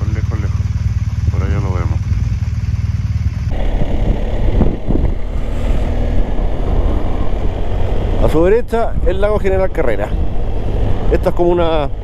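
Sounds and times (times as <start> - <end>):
motorcycle engine running: 0.0 - 5.3
wind rushing over microphone: 3.5 - 12.0.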